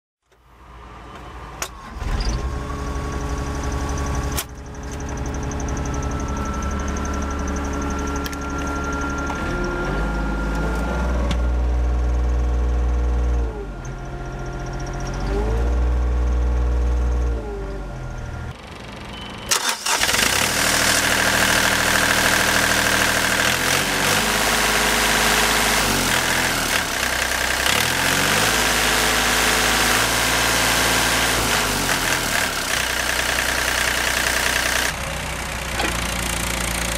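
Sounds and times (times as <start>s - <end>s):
diesel excavator engine revving: 1.7s - 18.6s, 19.5s - 36.9s.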